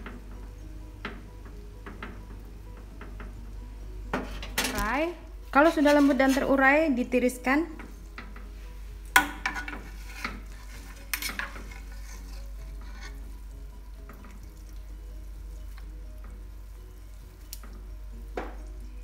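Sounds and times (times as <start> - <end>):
soft background music: 0.0 - 19.0
kitchen utensils clacking: 5.6 - 6.6, 9.2 - 13.2.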